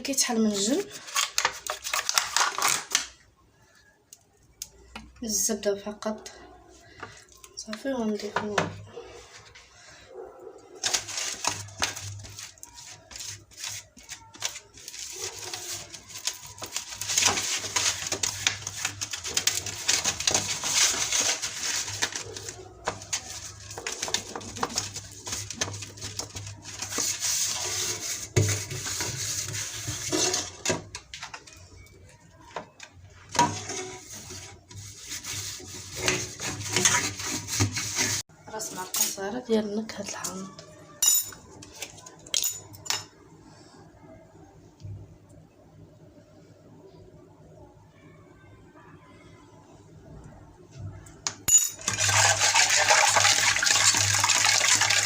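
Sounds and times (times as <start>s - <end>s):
utensil scraping a bowl: 33.4s - 38.2s.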